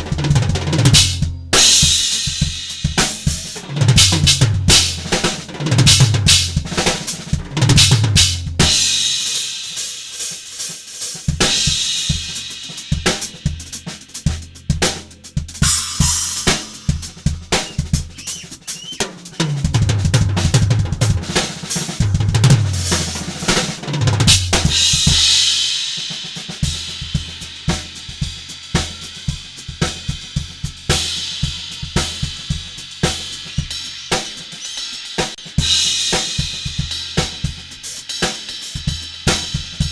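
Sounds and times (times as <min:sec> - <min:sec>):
drum kit beats: 0:00.0 - 0:39.9
crash cymbals ringing: 0:15.6 - 0:18.8.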